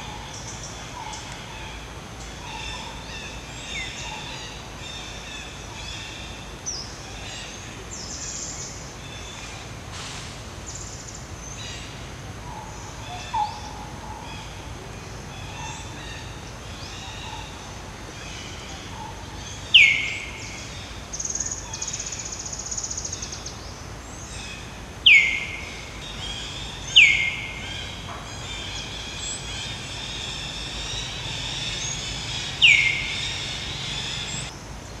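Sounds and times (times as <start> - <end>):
birds chirping and trilling: 10.7 - 34.5.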